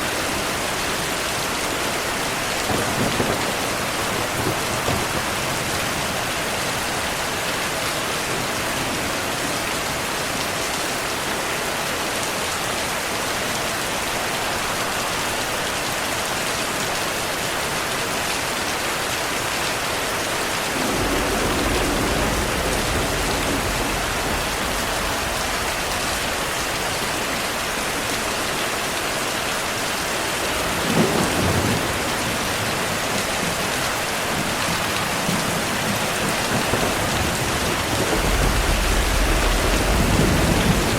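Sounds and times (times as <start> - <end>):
heavy rain: 0.0 - 40.9
loud thunderclap: 2.7 - 6.2, 20.7 - 28.1, 35.2 - 40.9
thunder rolling: 2.7 - 6.4, 20.7 - 28.3, 34.3 - 40.9.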